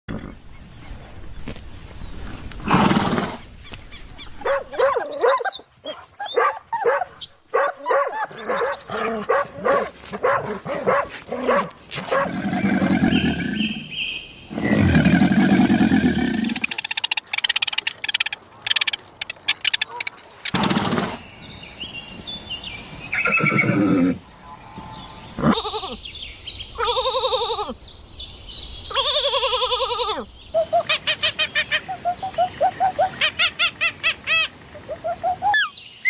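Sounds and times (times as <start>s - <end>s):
deep loud animal calls: 14.5s - 16.8s
repeated pitched calls: 14.5s - 21.0s
animal calls: 14.5s - 21.2s, 28.9s - 35.8s.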